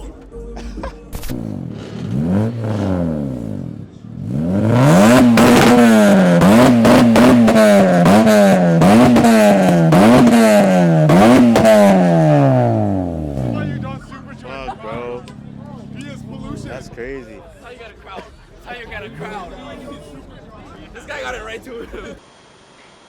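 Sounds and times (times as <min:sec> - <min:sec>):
exhaust crackling: 0:00.0 - 0:22.2
car engine revving: 0:01.1 - 0:22.2.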